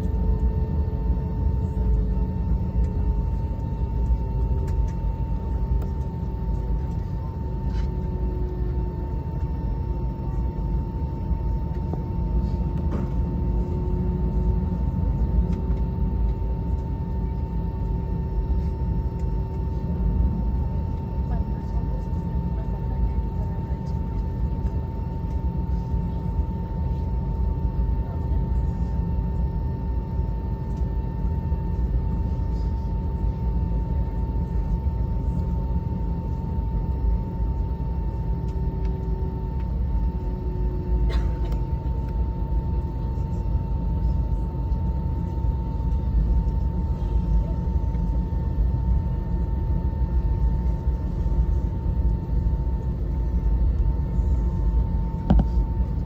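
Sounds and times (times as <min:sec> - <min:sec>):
airplane cabin rumble and whine: 0:00.0 - 0:56.0.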